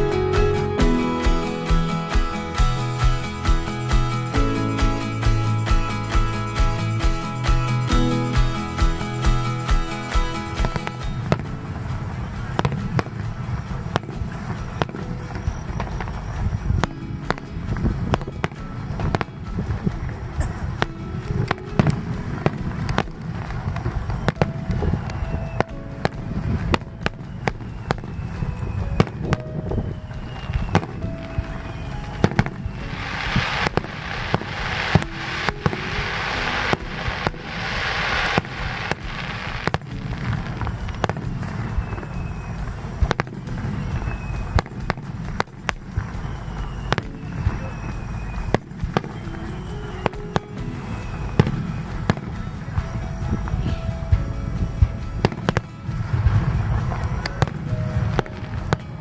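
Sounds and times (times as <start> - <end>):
dense firework crackling: 0.0 - 59.0
firework bangs: 9.3 - 59.0
faint falling whistles: 26.4 - 34.2, 40.8 - 44.9, 46.0 - 52.2.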